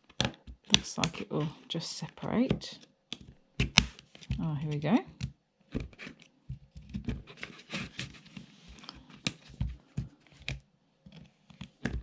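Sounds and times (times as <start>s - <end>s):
plastic case clicking and knocking: 0.0s - 1.3s, 11.2s - 12.0s
plastic scraping: 5.7s - 12.0s.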